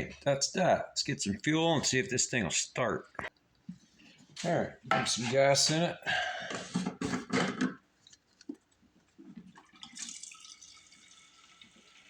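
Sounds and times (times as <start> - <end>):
fuel trickling and splashing: 9.4 - 12.0.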